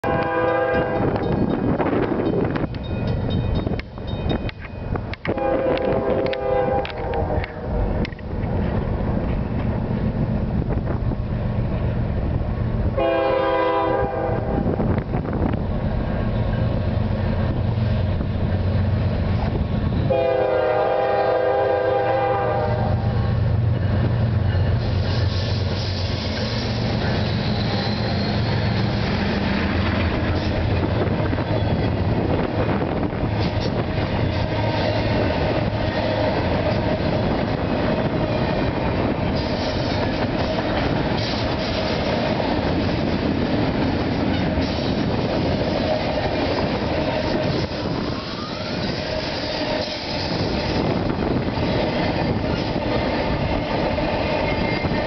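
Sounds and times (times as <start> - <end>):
multi-tone train air horn: 0.0 - 1.2, 5.3 - 7.7, 13.0 - 14.7, 20.1 - 23.2
diesel locomotives running: 0.0 - 55.0
freight cars rolling on rails: 0.0 - 55.0.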